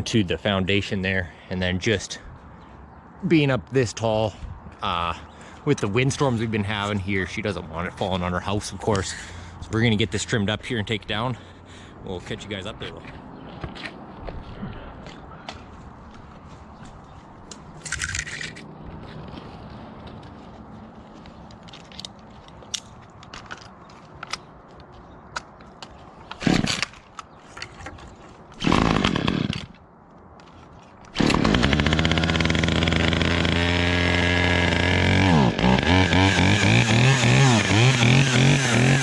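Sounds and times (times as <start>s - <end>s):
chainsaw engine bursts: 26.4s - 26.8s, 28.6s - 29.7s, 31.1s - 39.0s.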